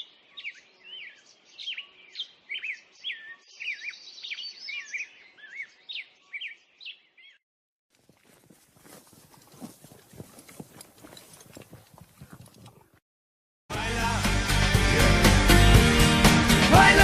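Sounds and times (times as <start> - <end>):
birds chirping and singing: 0.0 - 7.4.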